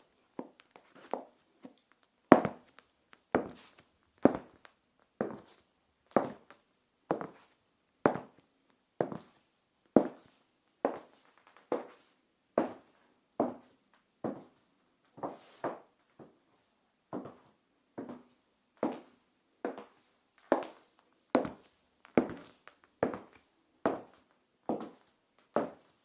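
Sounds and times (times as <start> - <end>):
high heels clicking on tiles: 4.2 - 5.4, 21.4 - 25.0.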